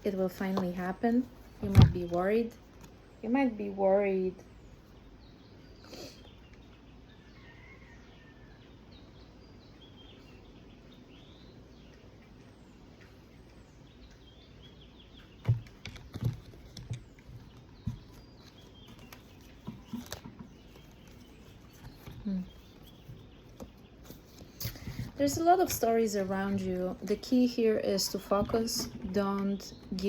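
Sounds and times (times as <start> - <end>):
faint bird chirps: 3.1 - 26.3.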